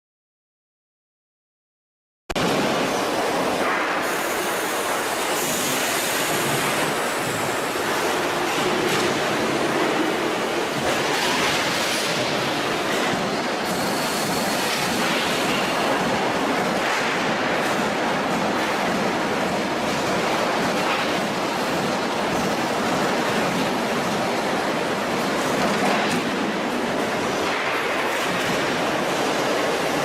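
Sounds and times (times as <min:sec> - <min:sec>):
factory machinery hissing din: 0:02.4 - 0:30.0.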